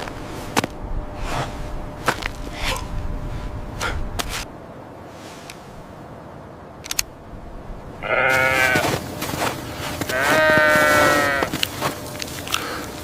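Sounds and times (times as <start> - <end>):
animal bleating: 8.0 - 9.0, 10.0 - 11.6.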